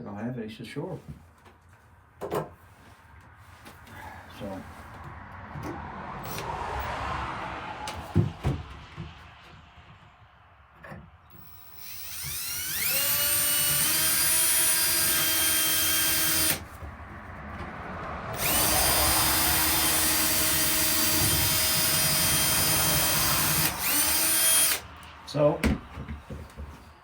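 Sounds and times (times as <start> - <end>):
power drill whining: 6.2 - 6.5, 11.3 - 16.8, 18.3 - 25.1.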